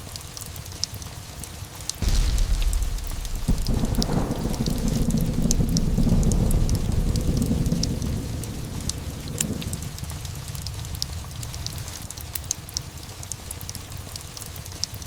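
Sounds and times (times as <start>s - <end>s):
crackles and drips: 0.0s - 15.0s
steady rain: 0.0s - 15.0s
thunder crack and rumble: 2.0s - 12.5s.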